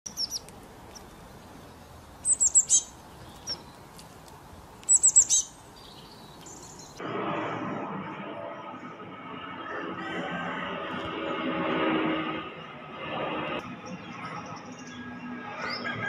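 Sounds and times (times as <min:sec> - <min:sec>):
small bird chirping: 0:00.1 - 0:04.0, 0:04.8 - 0:07.0.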